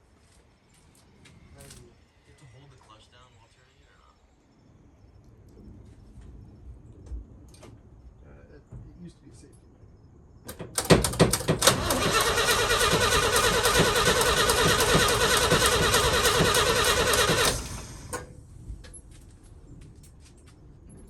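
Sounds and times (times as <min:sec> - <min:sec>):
engine cranking with starter whir: 0:10.5 - 0:18.4.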